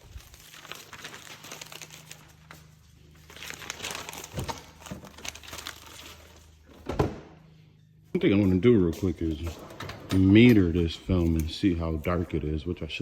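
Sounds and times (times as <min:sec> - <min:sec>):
plastic film crinkling: 0:00.0 - 0:06.6.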